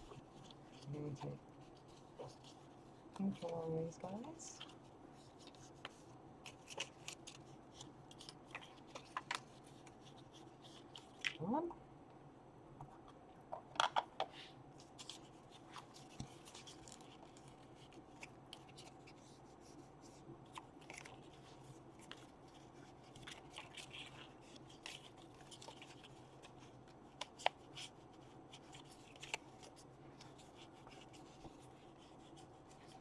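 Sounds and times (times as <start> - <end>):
paper rubbing: 14.9 - 33.0.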